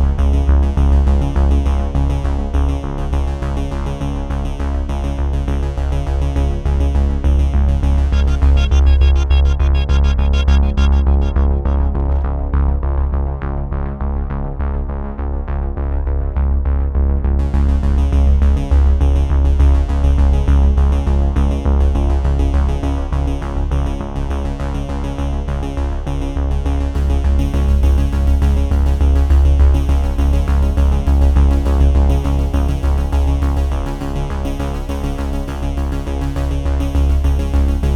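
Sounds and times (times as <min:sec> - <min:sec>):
electronic music with heavy bass: 0:07.2 - 0:12.8.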